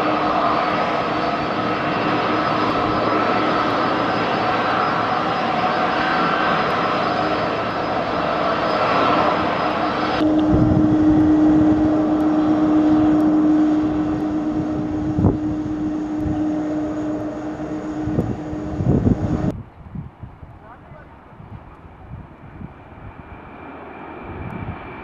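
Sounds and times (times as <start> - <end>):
airliner engines droning: 0.0 - 19.7, 20.6 - 25.0
steady low hum with held tone: 9.3 - 19.5.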